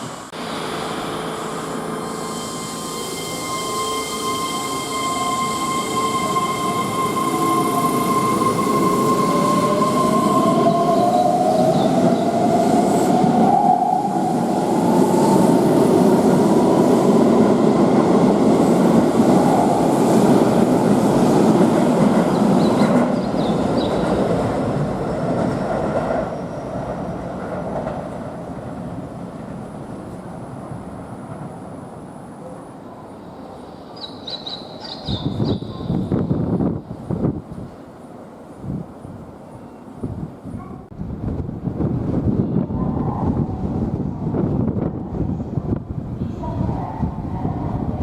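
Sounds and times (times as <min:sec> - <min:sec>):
train wheels rumbling on rails: 0:02.4 - 0:32.2.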